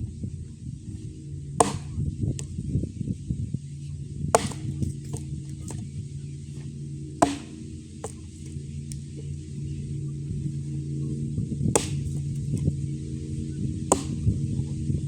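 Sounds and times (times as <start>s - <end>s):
axe chopping wood: 0.9s - 2.6s, 4.3s - 5.9s, 6.6s - 9.0s, 11.7s - 12.6s, 13.9s - 14.4s.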